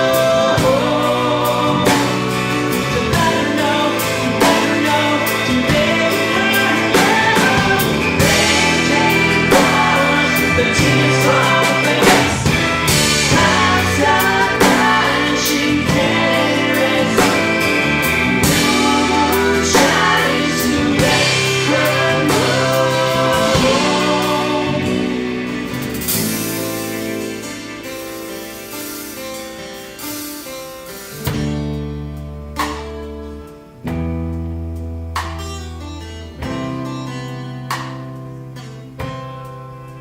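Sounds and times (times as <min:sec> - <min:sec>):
person singing: 0:00.0 - 0:26.4
acoustic guitar: 0:00.0 - 0:40.0
bass: 0:00.0 - 0:40.0
drums: 0:00.0 - 0:40.0
keyboards: 0:00.0 - 0:40.0.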